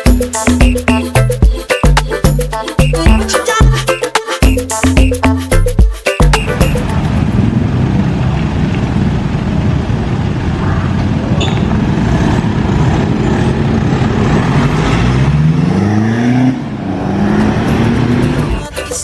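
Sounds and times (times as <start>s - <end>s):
diesel engine rumbling and revving: 6.4s - 19.0s.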